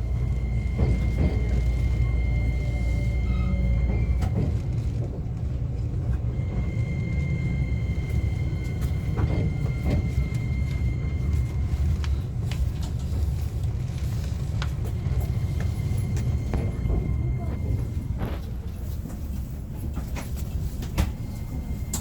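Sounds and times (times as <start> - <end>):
train running rumble: 0.0 - 22.0.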